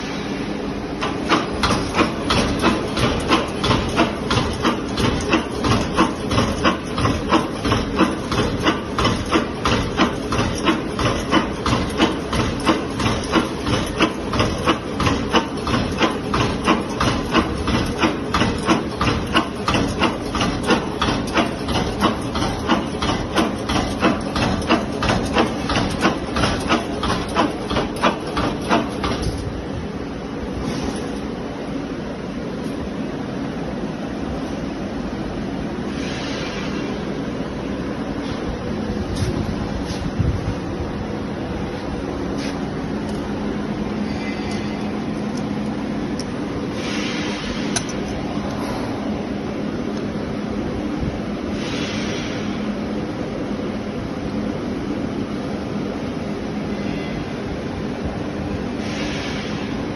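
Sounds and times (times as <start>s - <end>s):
machine drive hum and hiss: 0.0s - 59.9s
wire forming machine clacking: 0.9s - 31.5s, 38.2s - 52.7s.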